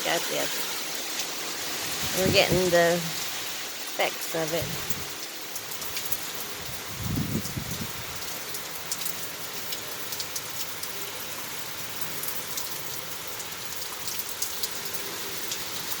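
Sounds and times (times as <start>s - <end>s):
heavy rain hissing: 0.0s - 12.2s
rain drops ticking: 0.0s - 16.0s.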